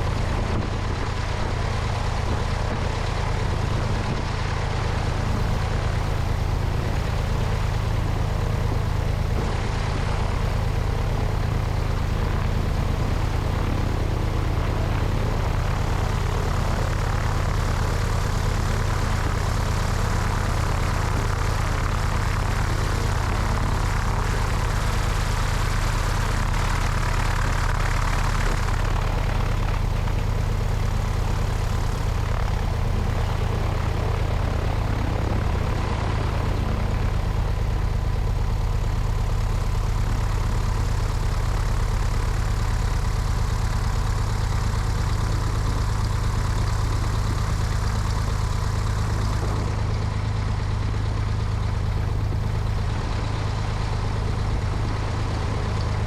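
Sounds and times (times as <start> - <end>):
wind noise: 0.0 - 38.2
propeller engine idling: 0.0 - 56.0.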